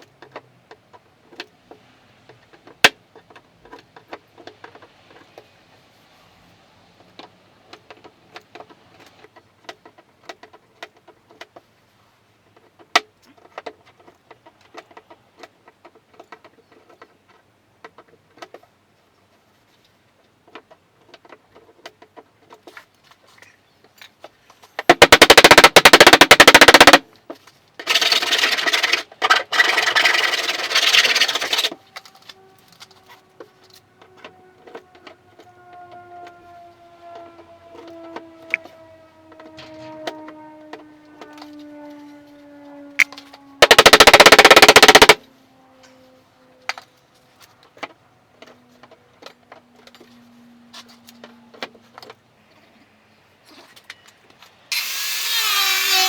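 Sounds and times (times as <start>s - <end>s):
loud rapid rattling: 24.8s - 27.0s, 27.9s - 31.7s, 43.6s - 45.2s
rough power tool noise: 27.9s - 33.2s, 54.7s - 56.0s.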